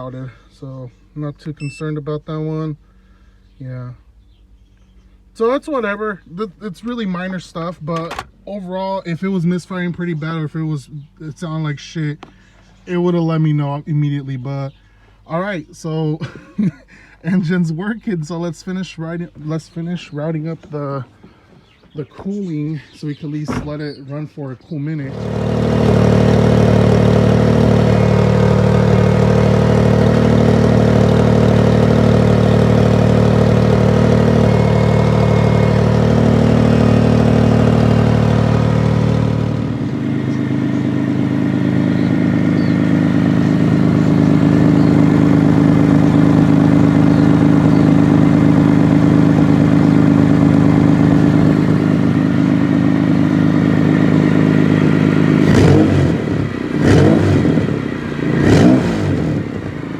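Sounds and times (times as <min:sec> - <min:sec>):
car engine idling: 0:25.1 - 0:59.9.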